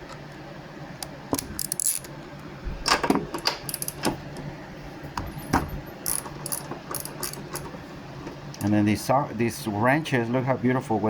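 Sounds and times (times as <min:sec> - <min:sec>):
metallic clinks of socket wrench: 0:06.0 - 0:07.6.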